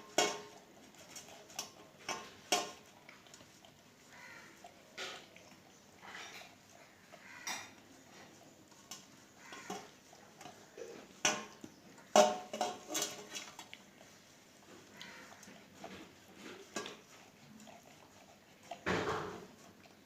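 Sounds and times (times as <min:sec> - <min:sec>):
dog food bowl clinking: 0:10.8 - 0:13.6.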